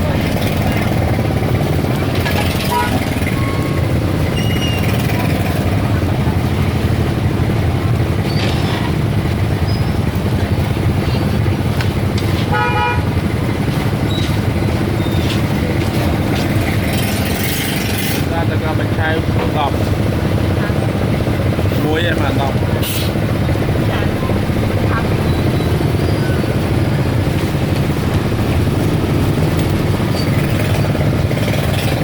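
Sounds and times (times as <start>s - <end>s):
rumble of vehicle engines: 0.0s - 32.0s
car horn toot: 2.6s - 3.8s, 12.5s - 13.1s.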